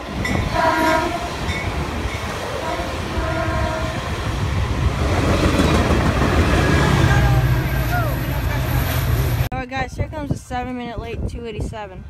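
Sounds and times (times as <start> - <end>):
diesel train passing: 0.0 - 9.5
faint train horn: 0.5 - 1.4, 2.5 - 4.1.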